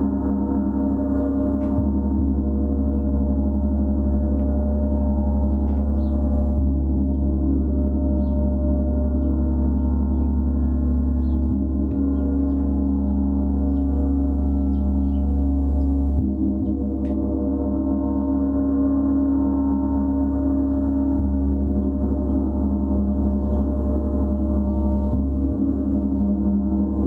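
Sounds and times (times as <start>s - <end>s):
sustained gong tones: 0.0s - 27.0s.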